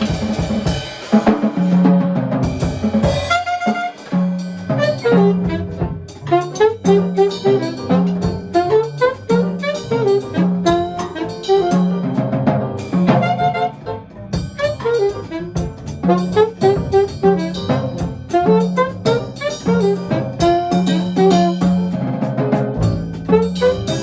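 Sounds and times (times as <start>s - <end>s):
drum kit with cymbals: 0.0s - 24.0s
horn melody: 3.0s - 24.0s
walking bass line: 4.7s - 24.0s.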